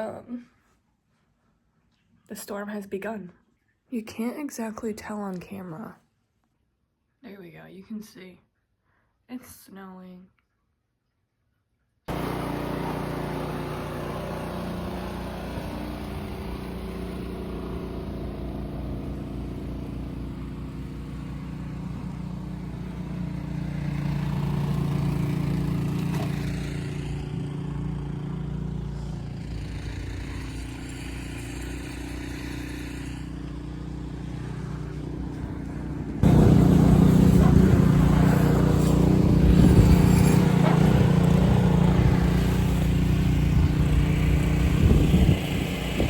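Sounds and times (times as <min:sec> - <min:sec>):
engine drone: 0:12.1 - 0:46.0.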